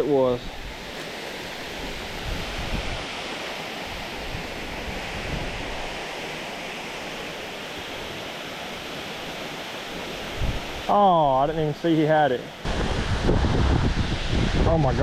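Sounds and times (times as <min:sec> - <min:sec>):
creek water rushing: 0:00.0 - 0:15.0
wind buffeting microphone: 0:01.6 - 0:03.2, 0:03.9 - 0:06.1, 0:10.2 - 0:10.9, 0:12.6 - 0:15.0.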